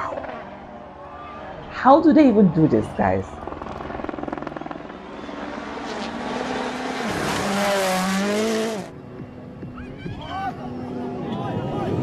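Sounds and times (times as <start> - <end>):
rally car engine running hard: 4.3 - 9.0.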